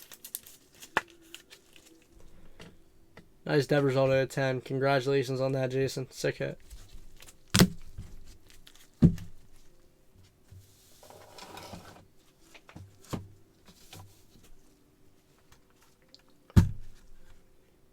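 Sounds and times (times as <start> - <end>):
card rustle: 0.0 - 2.1.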